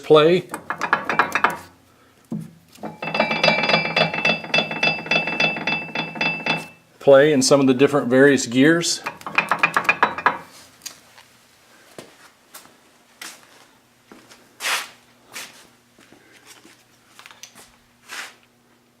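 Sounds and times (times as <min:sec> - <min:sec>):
metal gears clicking and clinking: 0:02.8 - 0:06.8, 0:09.0 - 0:10.5.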